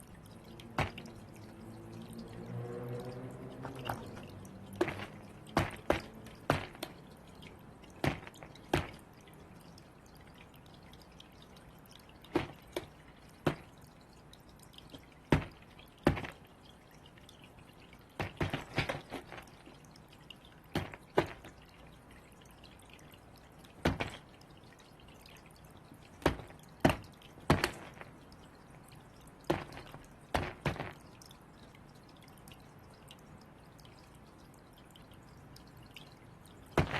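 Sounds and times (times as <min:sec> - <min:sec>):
sharp taps and knocks: 0:00.6 - 0:01.2, 0:03.6 - 0:07.1, 0:07.9 - 0:09.2, 0:12.2 - 0:13.8, 0:14.9 - 0:16.5, 0:18.2 - 0:19.7, 0:20.8 - 0:21.6, 0:23.8 - 0:24.3, 0:26.2 - 0:28.2, 0:29.5 - 0:31.1, 0:36.7 - 0:36.9.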